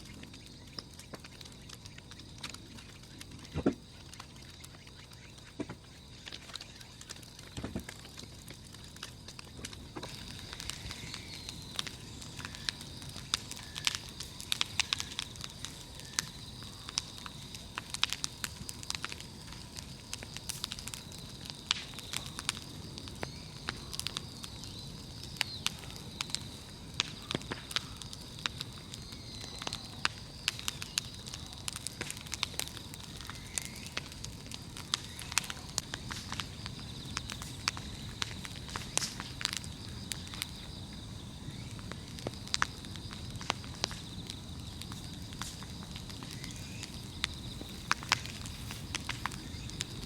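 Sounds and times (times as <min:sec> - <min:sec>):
bonfire crackling and popping: 0:00.0 - 0:50.0.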